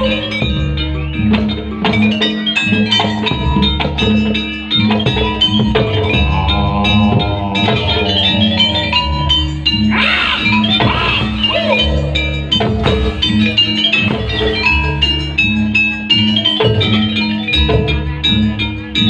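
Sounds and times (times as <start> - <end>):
drums and struck percussion: 0.0 - 19.0
pitched instruments: 4.4 - 17.5.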